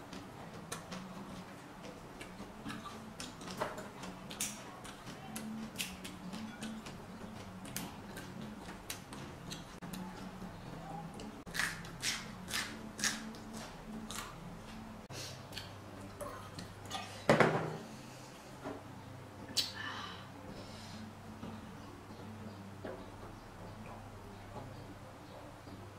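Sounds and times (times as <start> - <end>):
crunching raw vegetables: 11.5 - 14.4.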